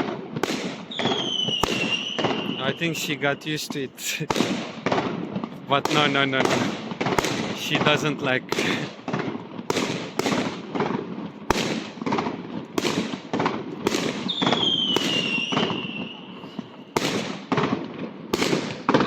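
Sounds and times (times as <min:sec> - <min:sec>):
whistling firework: 0:00.0 - 0:03.6, 0:09.1 - 0:19.0
fireworks banging: 0:00.0 - 0:19.0.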